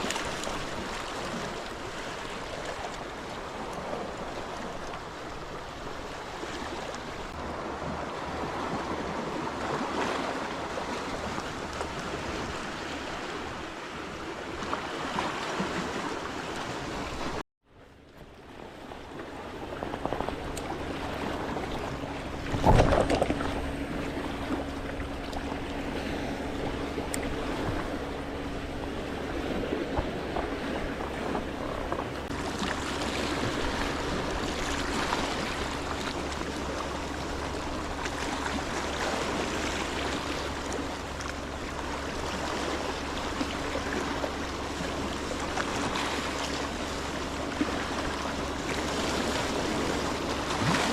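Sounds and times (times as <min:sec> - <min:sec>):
sea water washing: 0:00.0 - 0:17.4, 0:18.3 - 0:50.9
steady low hum: 0:17.8 - 0:50.9.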